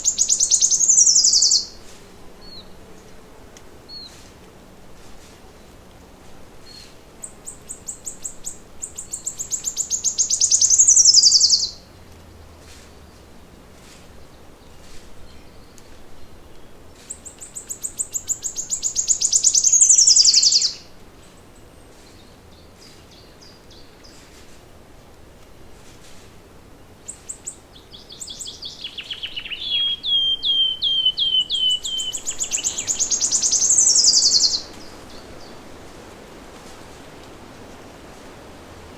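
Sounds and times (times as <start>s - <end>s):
faint bird chirps: 0.0s - 1.8s, 6.6s - 11.8s, 17.1s - 20.8s, 27.1s - 35.6s
songbird trilling song: 0.0s - 2.7s, 6.6s - 11.9s, 14.3s - 24.2s, 27.0s - 35.6s
soft background hiss: 0.0s - 38.9s.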